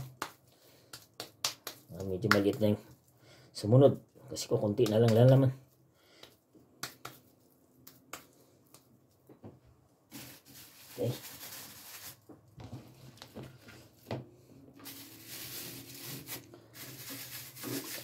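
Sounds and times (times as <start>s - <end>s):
hands patting ground meat: 0.0s - 2.9s, 3.9s - 9.5s
rustling: 10.1s - 18.0s.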